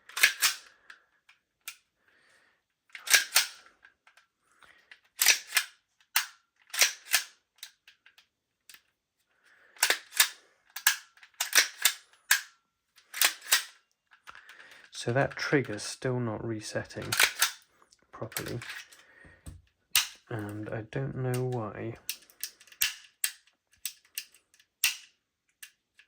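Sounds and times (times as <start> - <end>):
pistol metal clicks and snaps: 0.0 - 1.8, 2.9 - 8.9, 9.8 - 14.5, 17.1 - 17.7, 19.9 - 20.3, 22.1 - 26.0.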